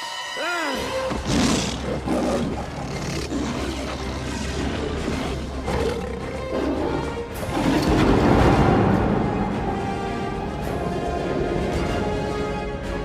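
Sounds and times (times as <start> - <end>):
dramatic orchestral music: 0.0 - 13.0
lions roaring: 1.1 - 7.2.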